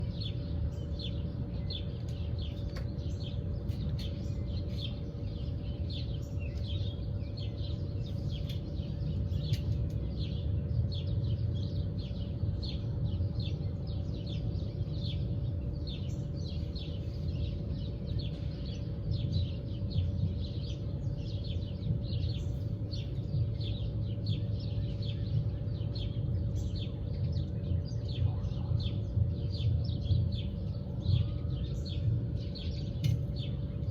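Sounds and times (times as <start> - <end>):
birds chirping: 0.0 - 33.9
faint constant hum: 0.0 - 33.9.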